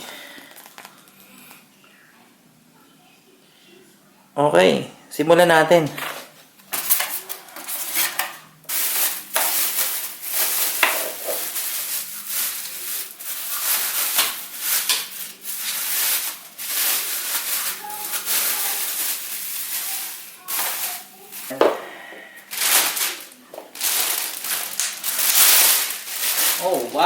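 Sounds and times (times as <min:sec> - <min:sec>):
packaging rustling and scraping: 0:05.9 - 0:21.6, 0:22.5 - 0:27.0.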